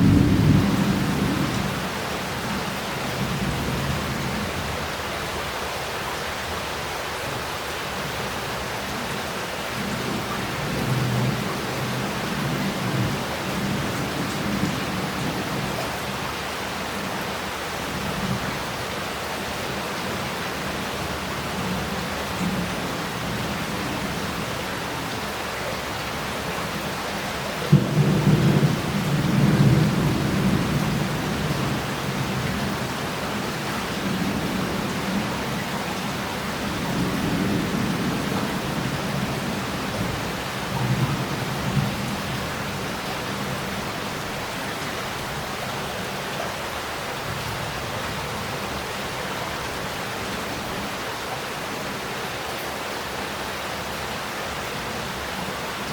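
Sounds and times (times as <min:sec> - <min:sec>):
thunderclap rumbling: 0:00.0 - 0:01.7
heavy rain pouring: 0:00.0 - 0:55.9.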